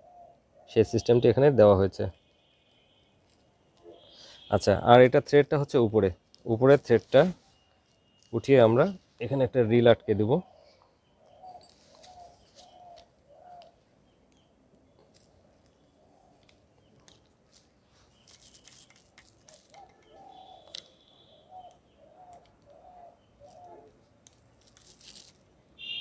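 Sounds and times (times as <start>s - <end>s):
bird calling: 0.0s - 4.8s, 7.2s - 17.2s, 17.9s - 24.1s, 25.8s - 26.0s.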